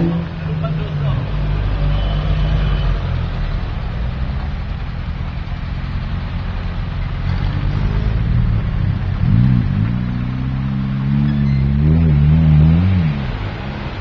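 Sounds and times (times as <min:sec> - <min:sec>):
off-road engines rumbling: 0:00.0 - 0:14.0
engine revving: 0:06.5 - 0:14.0.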